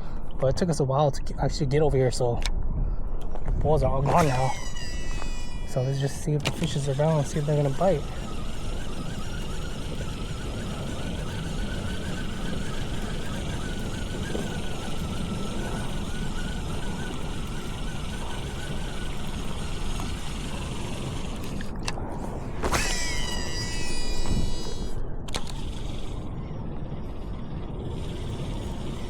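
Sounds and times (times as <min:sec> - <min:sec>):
wind rumble on microphone: 0:00.0 - 0:29.0
sharp click: 0:22.6 - 0:25.7.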